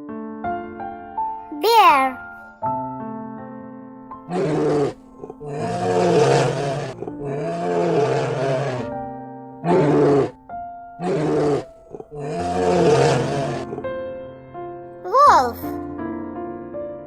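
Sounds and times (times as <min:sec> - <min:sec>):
children's music: 0:01.6 - 0:02.2, 0:15.1 - 0:15.7
bear growling and roaring: 0:04.3 - 0:09.0, 0:09.6 - 0:10.4, 0:11.0 - 0:13.9.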